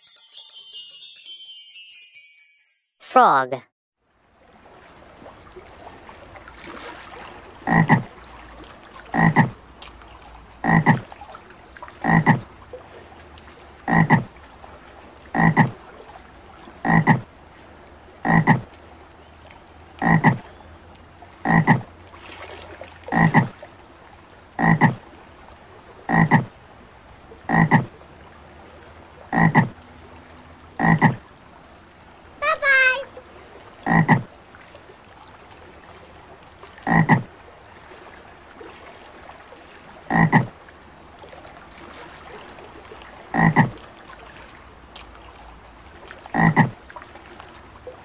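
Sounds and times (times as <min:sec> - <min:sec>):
frog croaking: 0:07.7 - 0:08.1, 0:09.2 - 0:09.6, 0:10.6 - 0:11.0, 0:12.0 - 0:12.4, 0:13.9 - 0:14.3, 0:15.4 - 0:15.7, 0:16.8 - 0:17.2, 0:18.2 - 0:18.6, 0:20.0 - 0:20.4, 0:21.4 - 0:21.9, 0:23.1 - 0:23.5, 0:24.6 - 0:25.0, 0:26.1 - 0:26.5, 0:27.5 - 0:27.9, 0:29.3 - 0:29.8, 0:30.8 - 0:31.2, 0:33.9 - 0:34.3, 0:36.8 - 0:37.3, 0:40.1 - 0:40.5, 0:43.3 - 0:43.7, 0:46.3 - 0:46.8.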